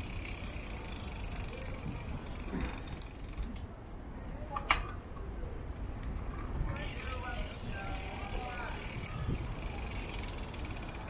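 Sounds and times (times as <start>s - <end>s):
bicycle riding rumble and hiss: 0.0s - 11.0s
wind noise on camera: 1.7s - 3.7s, 4.6s - 10.9s.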